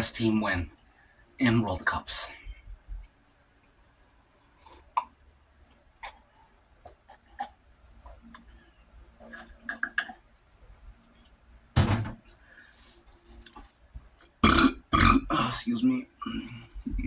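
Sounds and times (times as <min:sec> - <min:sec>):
man drinking and eating: 0:04.5 - 0:08.5, 0:09.2 - 0:10.3, 0:12.8 - 0:17.0
man burping: 0:14.4 - 0:15.6.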